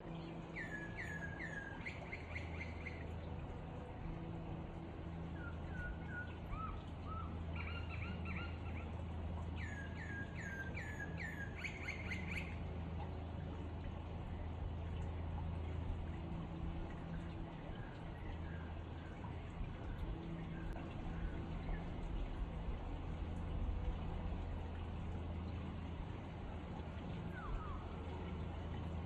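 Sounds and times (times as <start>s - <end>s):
songbird chirping: 0.0s - 22.8s
steady low hum: 0.0s - 29.0s.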